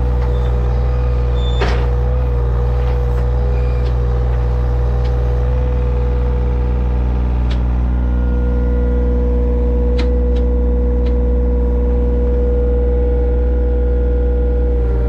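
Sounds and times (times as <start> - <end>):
digging machine engine running: 0.0 - 15.0
steady machine whine: 5.5 - 15.0.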